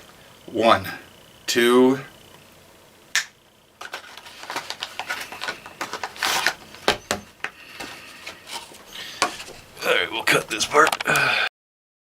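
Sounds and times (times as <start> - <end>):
plastic pouch tearing: 3.8 - 6.8
plastic pouch crinkling: 3.8 - 7.0.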